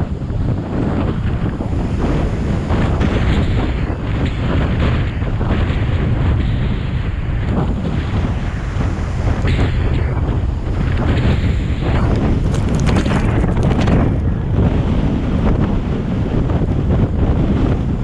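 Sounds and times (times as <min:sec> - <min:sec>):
rough sea surf: 0:00.0 - 0:18.0
wind buffeting microphone: 0:00.0 - 0:18.0.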